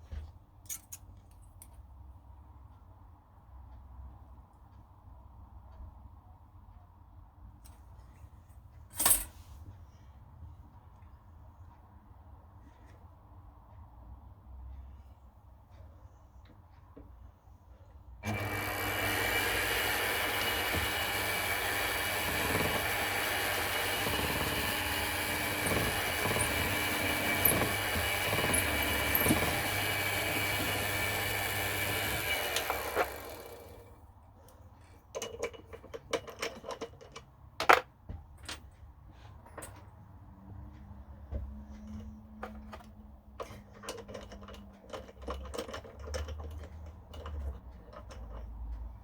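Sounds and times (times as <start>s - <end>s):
milling machine whine: 18.2s - 33.9s.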